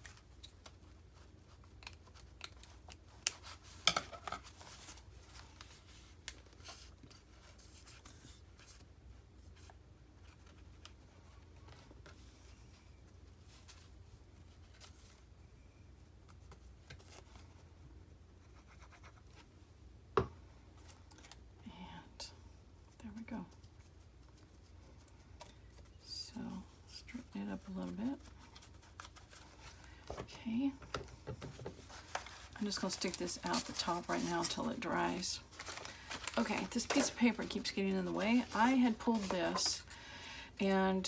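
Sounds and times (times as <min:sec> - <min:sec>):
paper and lace rustling: 0:00.0 - 0:08.9, 0:22.9 - 0:41.0.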